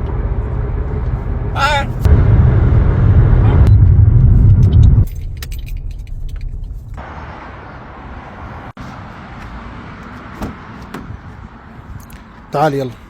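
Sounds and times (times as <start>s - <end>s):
car low rumble: 0.0s - 8.8s.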